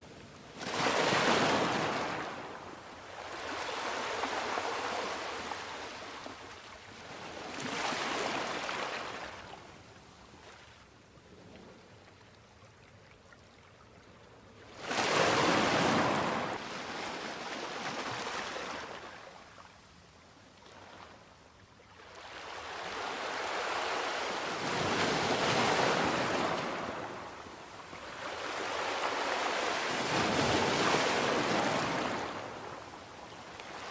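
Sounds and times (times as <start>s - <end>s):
sea waves breaking on beach: 0.5s - 9.5s, 14.7s - 19.3s, 22.1s - 33.9s.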